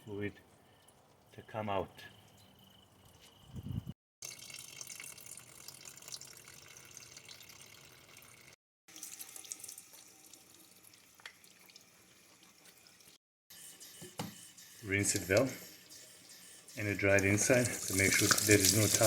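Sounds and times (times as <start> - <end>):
liquid trickling and splashing: 4.2 - 13.0, 17.2 - 19.0.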